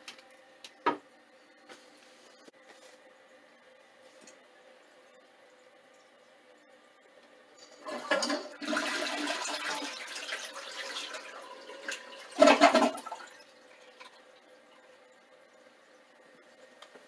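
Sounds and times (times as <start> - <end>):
toilet flushing: 7.6 - 15.1.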